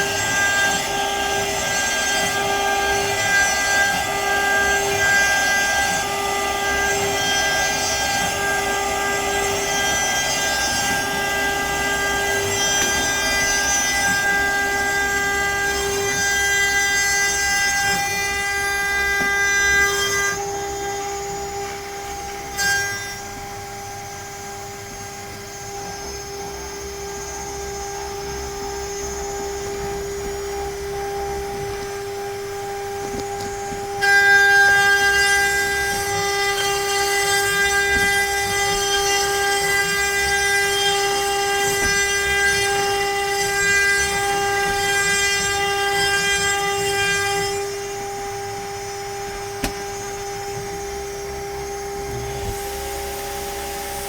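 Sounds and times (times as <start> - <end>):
router spindle whine: 0.0 - 54.0
bit cutting through wood: 28.8 - 54.0.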